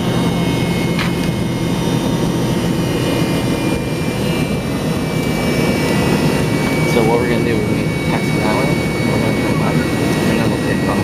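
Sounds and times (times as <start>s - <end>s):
jet engines roaring: 0.0s - 11.0s
thin high whine: 0.0s - 11.0s.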